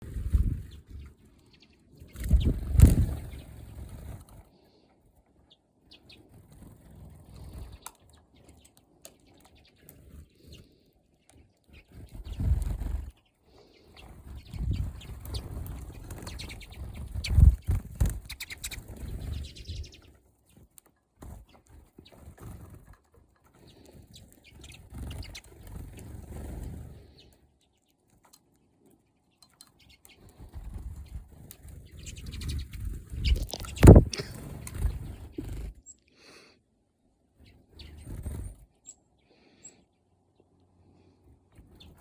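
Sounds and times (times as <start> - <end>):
birds fluttering wings: 0.0 - 1.3, 1.9 - 4.8, 5.9 - 10.8, 11.7 - 27.4, 29.6 - 35.8, 37.7 - 38.8
bird chirps: 0.4 - 4.0, 5.4 - 20.7, 23.6 - 28.4, 29.0 - 36.1, 37.4 - 40.6.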